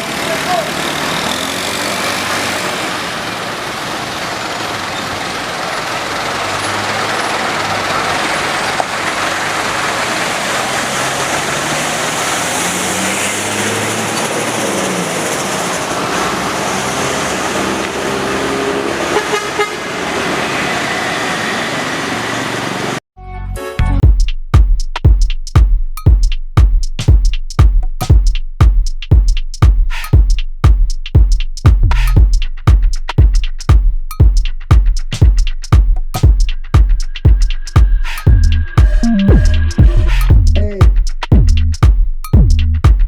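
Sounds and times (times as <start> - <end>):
truck engine running: 0.0 - 19.2, 30.6 - 43.0
road noise: 0.0 - 23.0, 29.9 - 42.9
vehicle horns tooting: 18.1 - 20.1.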